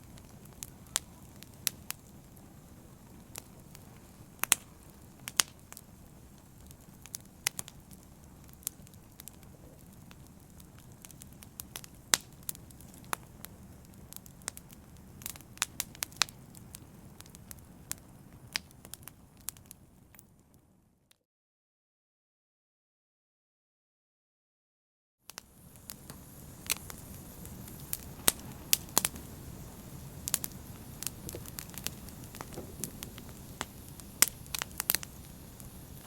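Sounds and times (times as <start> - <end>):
wood fire crackling: 0.0 - 20.6, 25.3 - 36.0.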